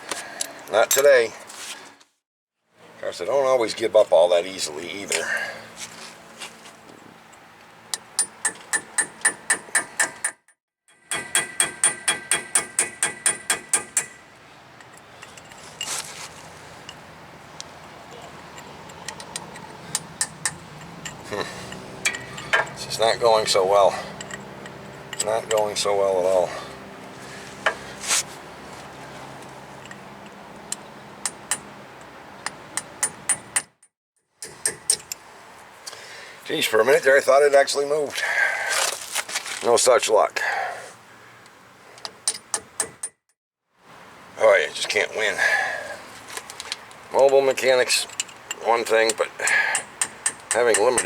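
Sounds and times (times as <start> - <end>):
hammer tapping on steel: 11.1 - 14.2, 18.1 - 22.8.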